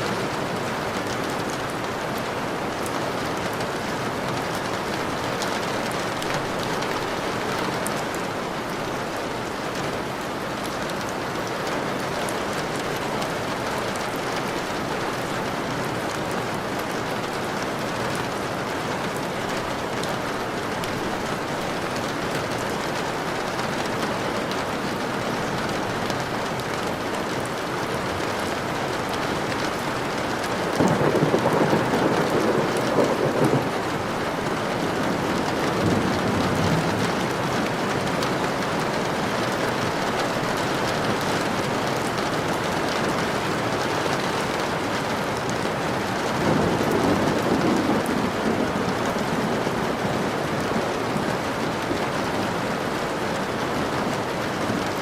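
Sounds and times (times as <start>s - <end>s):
heavy rain: 0.0s - 55.0s
thunder rolling: 30.8s - 38.3s, 46.3s - 49.9s.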